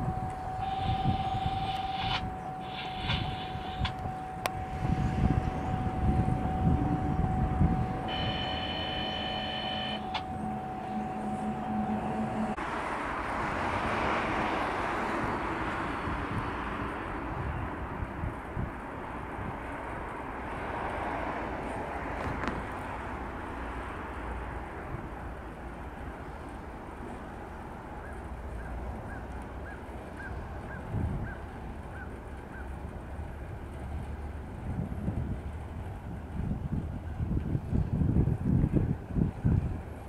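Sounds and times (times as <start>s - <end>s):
high-pitched tones: 0.0s - 12.6s
diesel locomotive running: 0.0s - 40.0s
freight train wheels rumbling: 0.0s - 40.0s.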